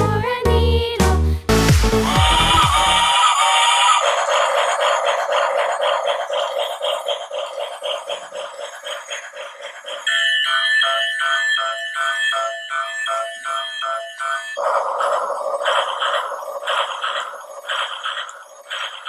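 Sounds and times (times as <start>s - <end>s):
toy train chugging sound effect: 3.1s - 13.8s, 14.4s - 19.0s
ringing bell-like tone: 10.0s - 16.6s.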